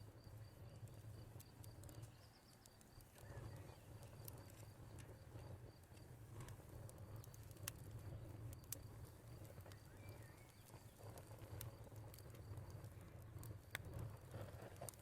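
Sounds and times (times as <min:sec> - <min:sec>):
wood fire crackling: 0:00.0 - 0:15.0
cricket chirping: 0:00.1 - 0:06.0.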